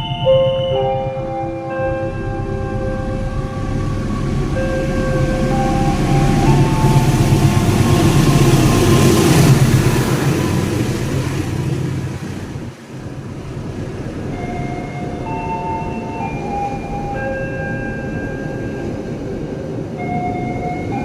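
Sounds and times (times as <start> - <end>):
faint high tones: 0.0 - 9.8
passenger train rumbling past: 0.0 - 21.0
train rolling noise: 0.0 - 21.0.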